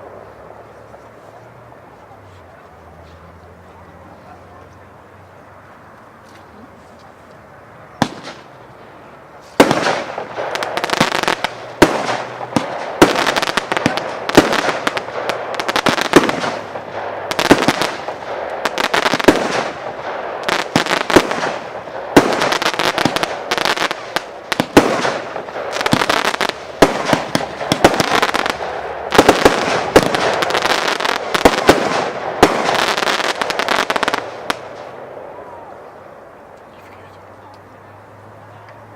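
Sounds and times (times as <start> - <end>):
firework bang: 8.0 - 8.5, 9.5 - 35.0
rapid firework bangs and crackling: 8.0 - 35.8.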